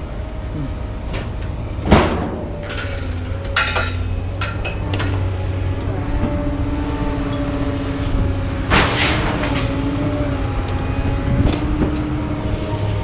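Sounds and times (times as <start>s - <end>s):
low engine hum: 0.0s - 13.0s
scrap metal clanking: 1.1s - 5.4s, 8.7s - 10.0s.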